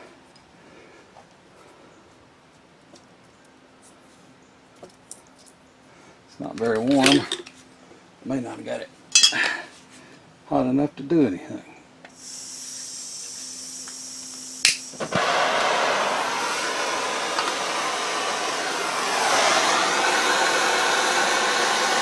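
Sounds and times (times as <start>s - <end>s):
faint hiss and hum: 0.0s - 22.0s
heat gun blowing: 12.1s - 22.0s.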